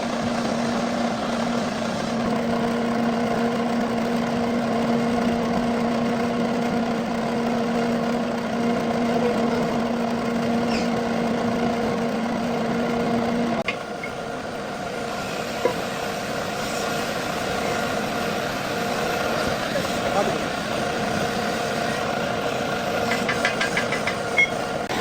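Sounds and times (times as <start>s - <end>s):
lathe humming: 0.0s - 25.0s
steady machine noise: 0.0s - 25.0s.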